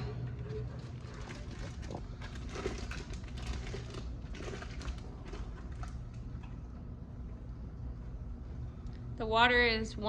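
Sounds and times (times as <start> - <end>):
plastic bags crinkling: 0.0 - 6.0
steady low hum: 0.0 - 10.0.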